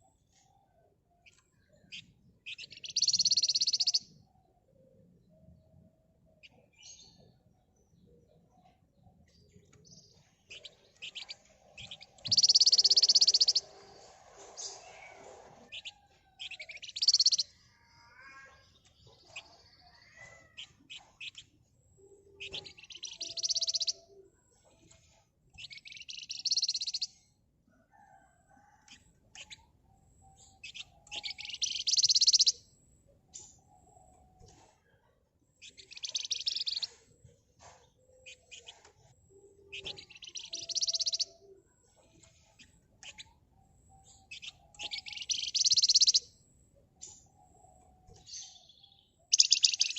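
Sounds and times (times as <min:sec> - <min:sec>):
bird chirps and chattering: 0:01.2 - 0:04.2, 0:08.4 - 0:13.8, 0:15.7 - 0:27.2, 0:28.9 - 0:32.6, 0:35.6 - 0:37.0, 0:37.6 - 0:46.3, 0:46.9 - 0:49.9
songbird trilling: 0:01.3 - 0:04.2, 0:10.5 - 0:13.7, 0:15.7 - 0:18.5, 0:22.1 - 0:24.2, 0:25.6 - 0:27.2, 0:29.4 - 0:32.6, 0:35.6 - 0:37.0, 0:39.4 - 0:41.6, 0:43.0 - 0:46.3, 0:47.2 - 0:49.9.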